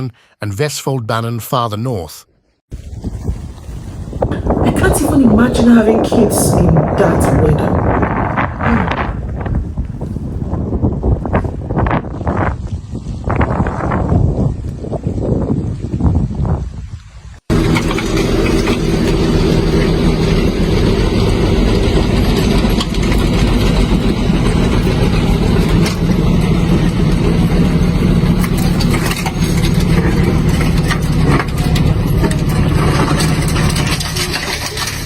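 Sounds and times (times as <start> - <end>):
vehicle engine running: 17.5 - 35.0.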